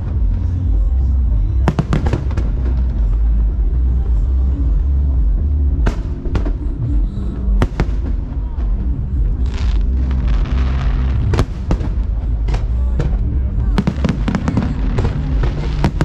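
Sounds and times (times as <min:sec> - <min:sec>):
low rumble: 0:00.0 - 0:16.0
music: 0:00.0 - 0:16.0
fireworks bangs: 0:01.7 - 0:03.2, 0:07.6 - 0:16.0
fireworks crackling fizz: 0:09.4 - 0:12.8.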